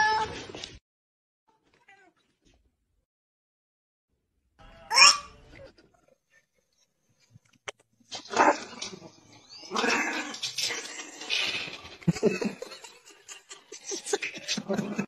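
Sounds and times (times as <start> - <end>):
dog barking and growling: 4.9 - 6.4, 8.1 - 11.6.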